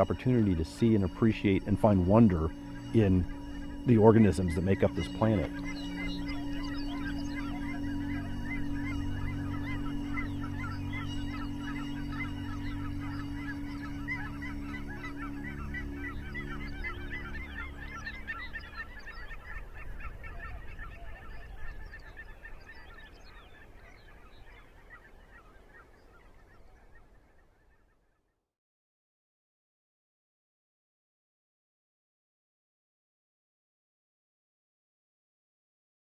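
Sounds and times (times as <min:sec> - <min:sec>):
low steady drone: 0:00.0 - 0:23.8
geese honking: 0:00.0 - 0:28.0.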